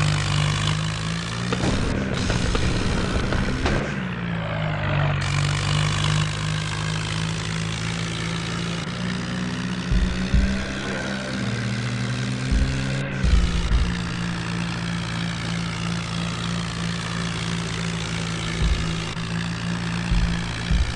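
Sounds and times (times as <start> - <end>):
tractor diesel engine running: 0.0 - 20.9
heavy low thumps: 9.9 - 10.8, 12.5 - 14.4, 18.5 - 19.3, 20.0 - 20.9.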